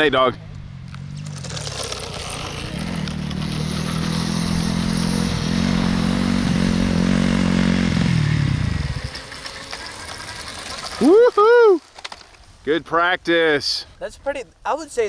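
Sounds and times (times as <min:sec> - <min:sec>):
dirt bike engine approaching: 0:00.0 - 0:12.6.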